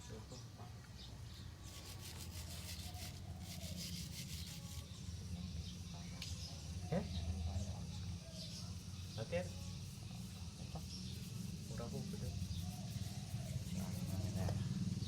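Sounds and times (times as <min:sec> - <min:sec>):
stiff brush scrubbing metal parts: 0:01.6 - 0:04.9, 0:11.0 - 0:14.6.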